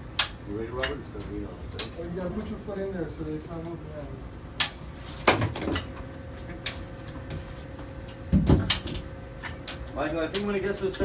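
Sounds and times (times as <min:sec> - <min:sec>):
heavy machine knocking and clunking: 0:08.3 - 0:09.1.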